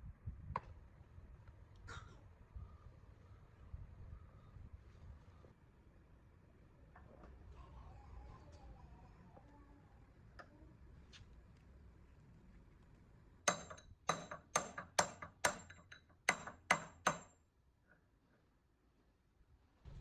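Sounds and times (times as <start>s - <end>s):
tool tapping on metal: 13.5s - 17.4s.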